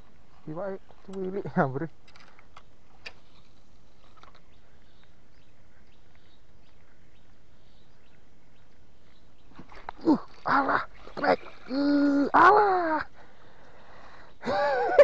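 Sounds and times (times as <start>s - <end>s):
outdoor background noise: 0.0s - 15.0s
faint bird chirps: 3.2s - 12.1s.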